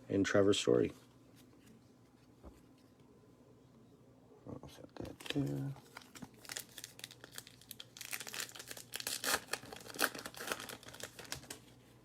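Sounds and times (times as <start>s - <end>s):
wrapper tearing and crinkling: 5.0s - 11.6s.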